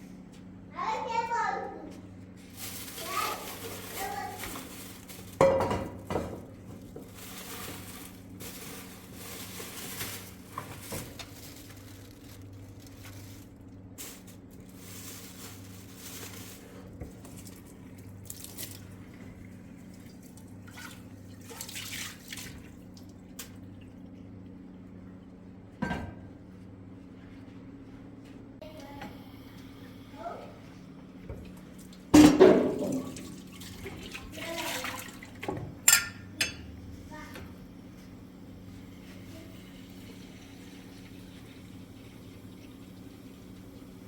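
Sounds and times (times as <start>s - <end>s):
steady low hum: 22.5s - 33.9s.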